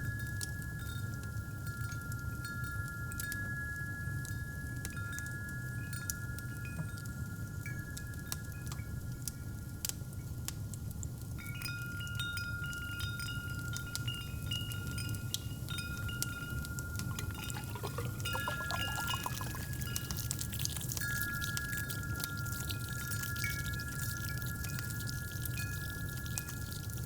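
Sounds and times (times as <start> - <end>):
wind chimes ringing: 11.4 - 26.4
liquid poured into a cup: 13.8 - 27.0
fireplace crackling: 17.0 - 22.0.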